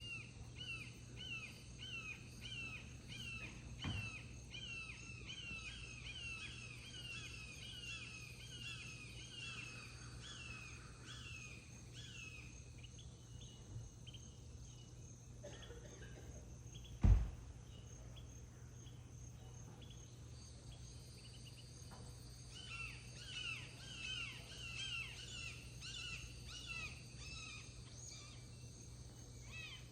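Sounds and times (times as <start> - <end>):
woodpecker calling: 0.0 - 14.3, 22.6 - 28.5, 29.4 - 29.9
sharp thump: 17.0 - 17.5.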